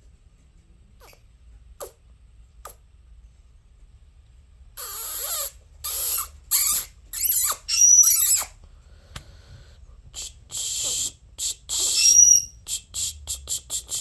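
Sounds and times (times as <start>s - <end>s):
parrot harsh scratchy calls: 4.8s - 8.6s, 10.2s - 14.0s.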